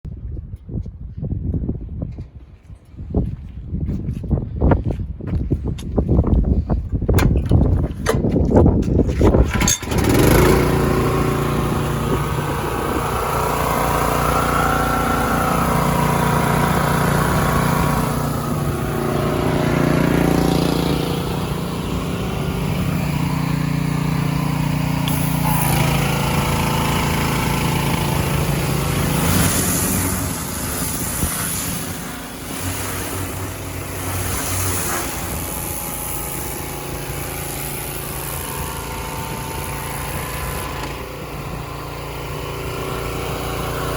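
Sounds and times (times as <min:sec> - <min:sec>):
pressure washer engine running: 0:09.5 - 0:43.9
high hiss bursts: 0:24.2 - 0:41.7.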